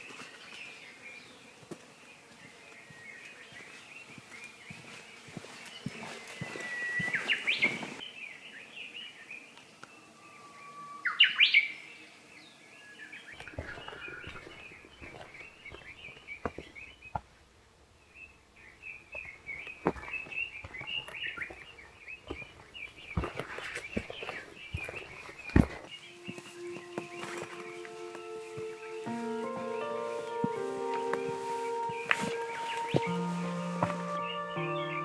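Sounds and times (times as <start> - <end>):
songbird whistled songs: 5.6 - 12.0, 18.1 - 35.0.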